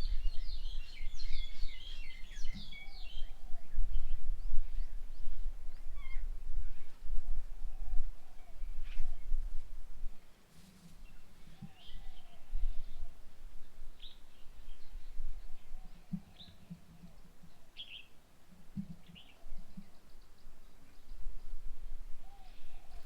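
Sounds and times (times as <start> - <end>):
birds chirping: 0.0 - 7.0, 11.0 - 13.1, 14.0 - 18.2, 18.8 - 21.5.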